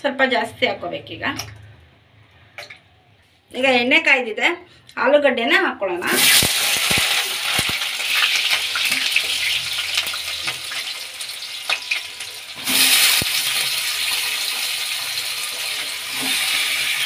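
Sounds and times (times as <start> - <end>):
potato slices sizzling in oil: 6.1 - 17.0.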